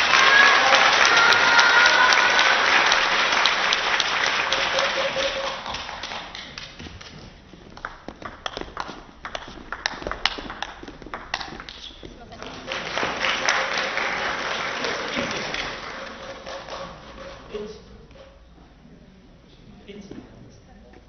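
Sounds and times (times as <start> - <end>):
audience applause: 0.0 - 6.8, 12.4 - 17.4.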